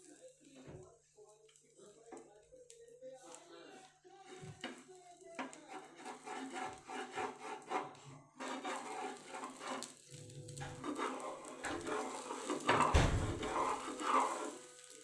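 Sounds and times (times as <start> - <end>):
bread scraping on hot griddle: 3.3 - 15.0.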